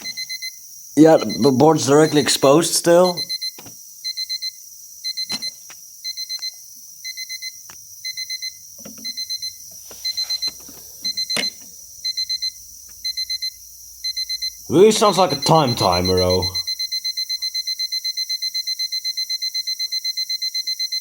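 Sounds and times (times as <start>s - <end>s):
digital alarm clock beeping: 0.0s - 21.0s.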